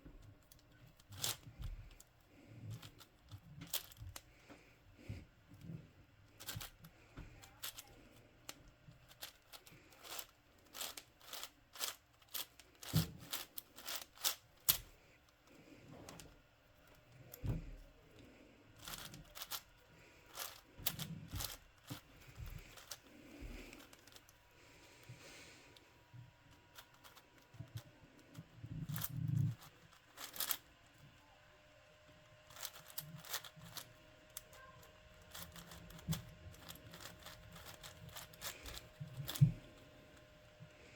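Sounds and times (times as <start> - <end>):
puzzle cube turning clicks: 0.4 - 2.1, 2.7 - 4.3, 6.3 - 15.0, 18.8 - 24.4, 26.7 - 30.6, 32.5 - 39.6.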